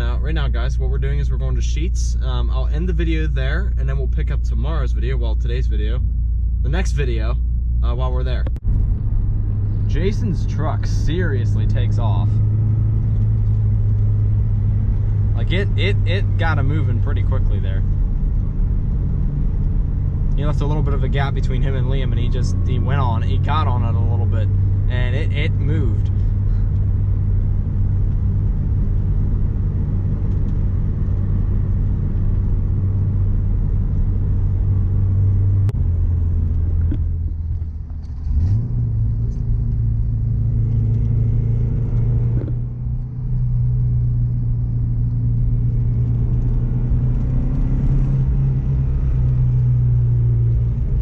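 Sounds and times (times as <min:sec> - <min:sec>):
car engine droning: 0:00.0 - 0:51.0.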